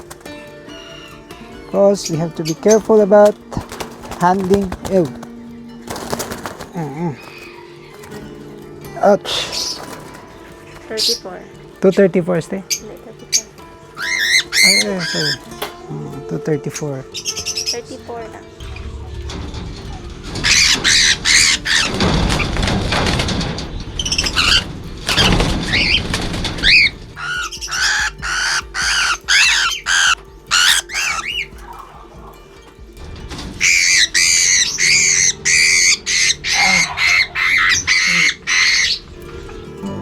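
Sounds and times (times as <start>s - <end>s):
birds squawking harshly: 0.0s - 40.0s
wing flapping and scuffling: 0.0s - 40.0s.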